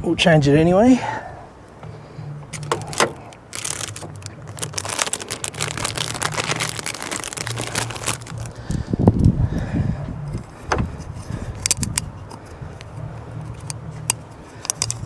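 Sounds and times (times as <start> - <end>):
wind rumble on microphone: 1.2 - 15.0
packaging crinkling and clicking: 2.5 - 8.8, 13.6 - 15.0.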